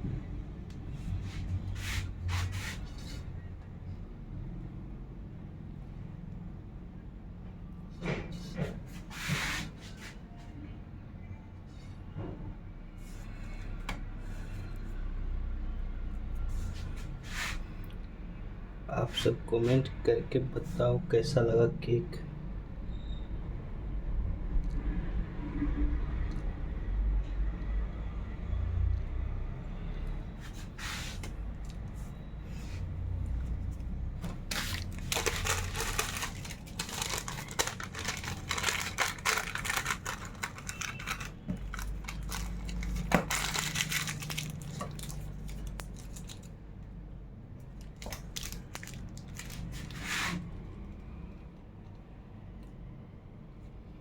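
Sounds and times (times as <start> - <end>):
wrapping material rustling: 33.4 - 46.6, 47.7 - 50.4.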